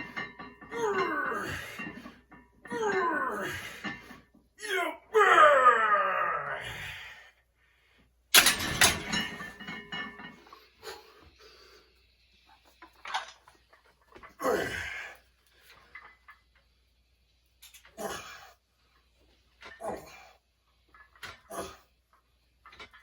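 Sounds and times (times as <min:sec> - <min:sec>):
gym weights clanking: 0:08.4 - 0:10.6.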